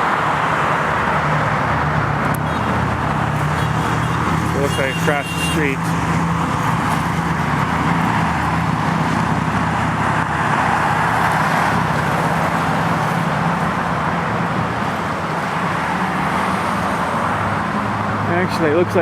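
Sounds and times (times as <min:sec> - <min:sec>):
cars passing: 0:00.0 - 0:19.0.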